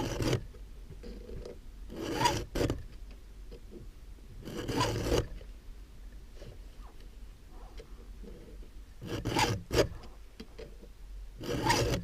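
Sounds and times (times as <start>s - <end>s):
file rasping on saw chain: 0.0s - 0.4s, 1.9s - 2.8s, 4.4s - 5.3s, 9.0s - 10.0s, 11.4s - 12.0s.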